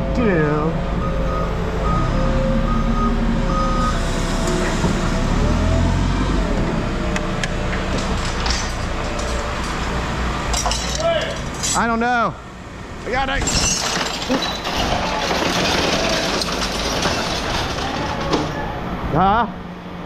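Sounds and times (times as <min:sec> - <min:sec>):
reversing alarm beeping: 0:00.0 - 0:04.6
diesel engine running: 0:00.0 - 0:13.5
rushing mechanical noise: 0:00.0 - 0:20.0.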